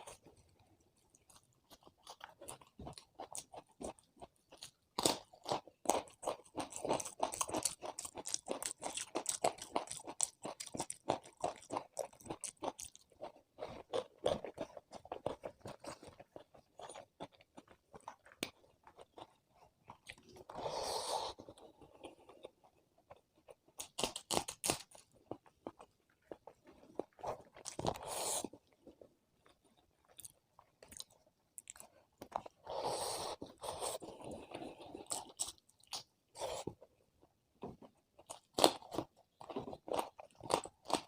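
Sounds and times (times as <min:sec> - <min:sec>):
chewing and crunching food: 0:00.0 - 0:41.0.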